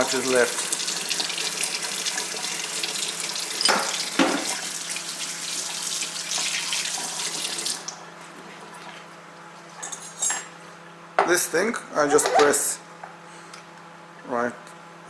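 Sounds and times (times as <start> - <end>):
tap running into a sink: 2.8 - 4.8.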